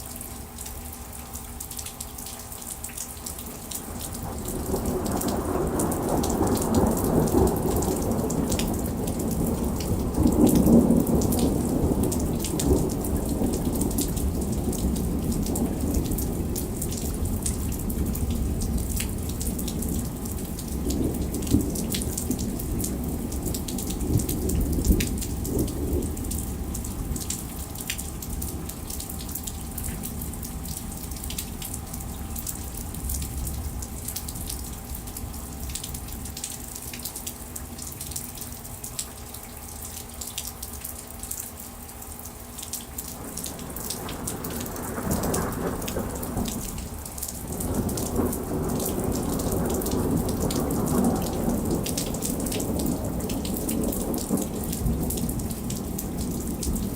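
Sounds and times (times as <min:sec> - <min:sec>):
heavy rain: 0:00.0 - 0:56.9
rolling thunder: 0:04.0 - 0:27.6, 0:43.2 - 0:56.9.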